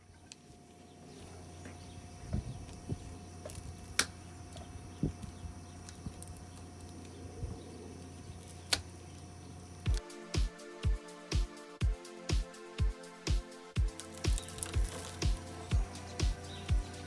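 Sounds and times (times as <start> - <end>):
steady low hum: 0.0 - 11.0, 13.8 - 17.0
hand tools clicking on metal: 13.9 - 16.9.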